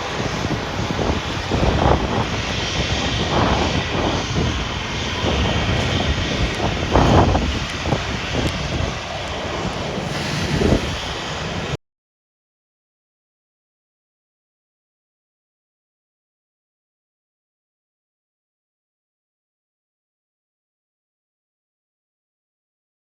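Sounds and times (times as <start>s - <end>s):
aircraft engine running: 0.0s - 11.8s
wind buffeting microphone: 0.0s - 11.8s.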